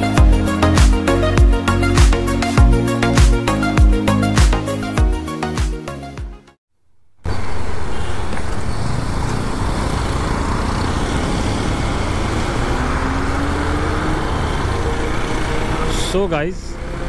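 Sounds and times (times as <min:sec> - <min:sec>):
motorcycle riding at speed: 0:07.2 - 0:17.0.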